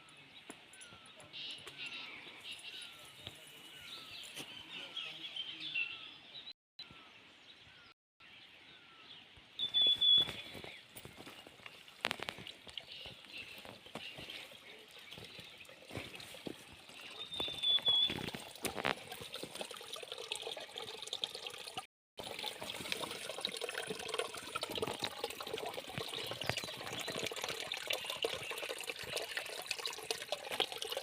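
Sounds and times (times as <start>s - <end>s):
stream water flowing: 9.6s - 31.0s.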